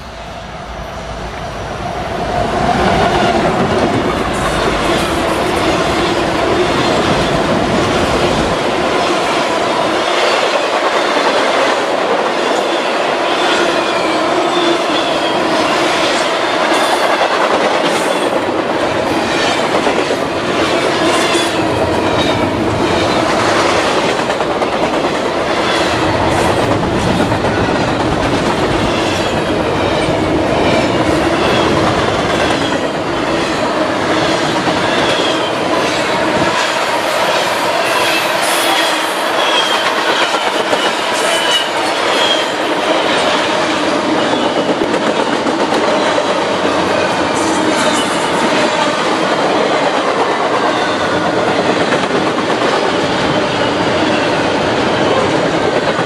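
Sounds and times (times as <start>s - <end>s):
clickety-clack over rail joints: 2.5s - 9.4s, 34.4s - 53.7s, 54.7s - 56.0s.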